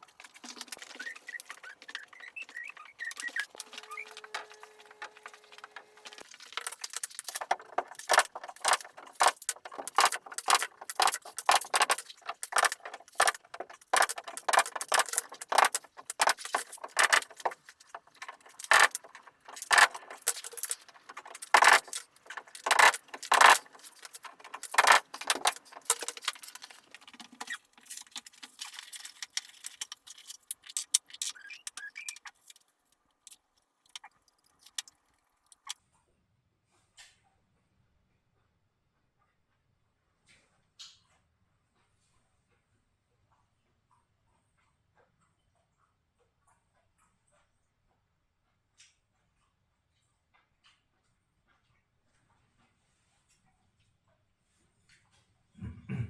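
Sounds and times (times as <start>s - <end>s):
tools knocking and clattering: 0.1s - 32.6s.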